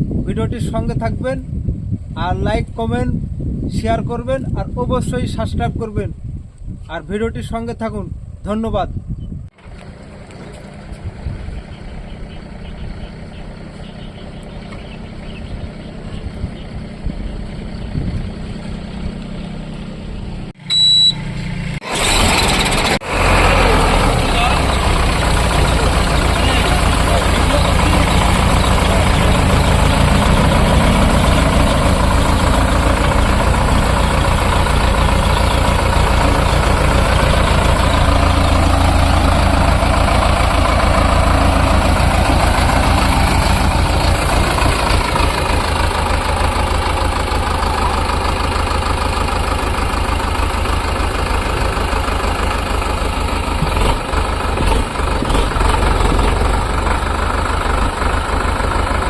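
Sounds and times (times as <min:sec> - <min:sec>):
tractor diesel engine running: 0:09.3 - 0:59.0.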